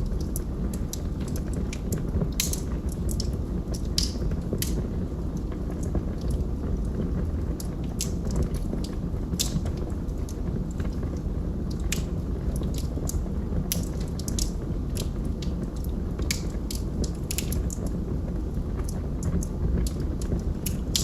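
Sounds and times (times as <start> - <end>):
log fire crackling: 0.0 - 21.0.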